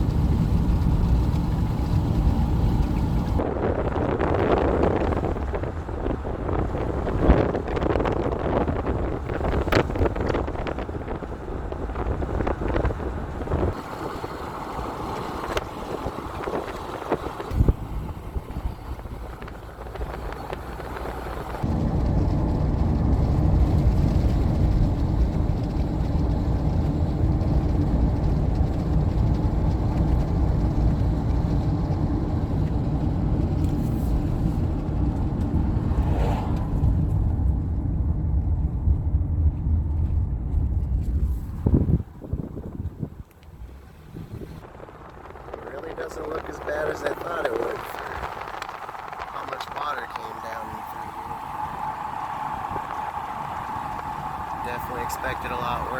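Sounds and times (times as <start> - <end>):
car driving rumble: 0.0 - 55.9
wind buffeting microphone: 0.0 - 55.9.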